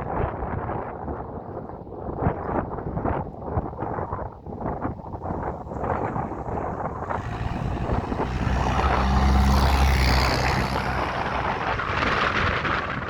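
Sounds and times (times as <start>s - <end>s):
diesel locomotive engine drone: 6.4s - 13.0s.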